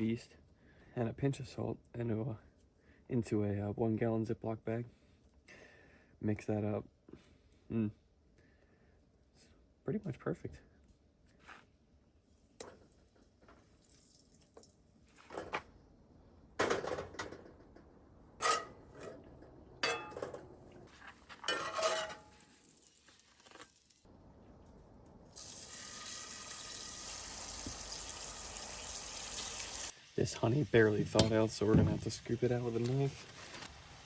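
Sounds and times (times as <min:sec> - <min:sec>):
cookware clattering: 0:18.4 - 0:20.6, 0:21.4 - 0:22.4
food sizzling in a pan: 0:22.2 - 0:24.1, 0:25.3 - 0:34.0.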